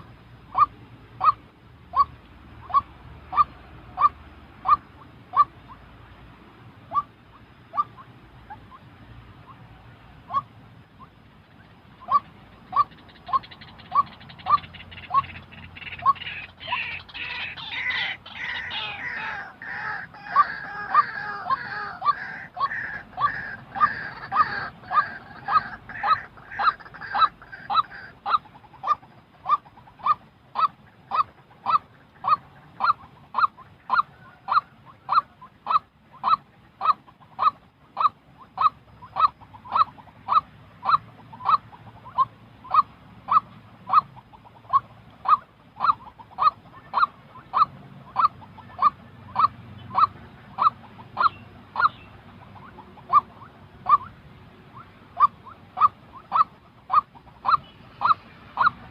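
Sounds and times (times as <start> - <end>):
waterhen calling: 0.0 - 58.9
higher-pitched bird call: 12.0 - 31.8.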